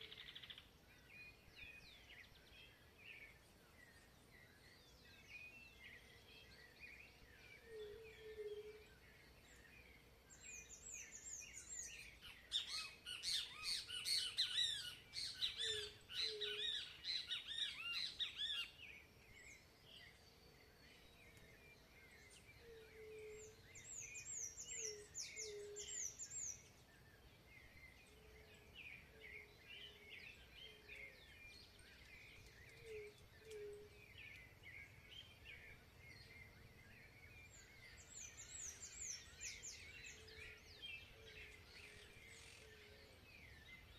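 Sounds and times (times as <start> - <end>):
bird chirps: 0.0 - 43.9
bird loud rapid song: 0.0 - 43.9.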